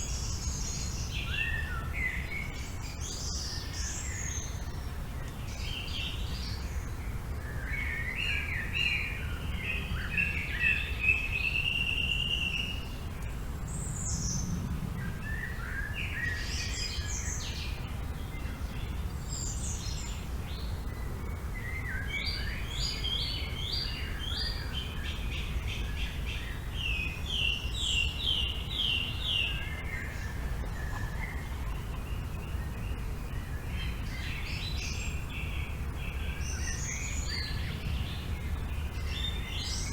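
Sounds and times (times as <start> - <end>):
low wind rumble: 0.0 - 39.9
songbirds calling and singing: 0.0 - 39.9.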